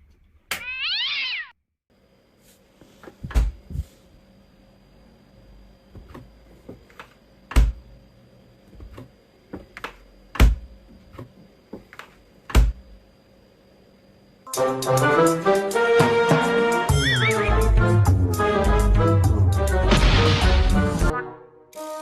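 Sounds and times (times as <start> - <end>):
music: 14.5 - 22.0
loud thumps: 19.8 - 21.1.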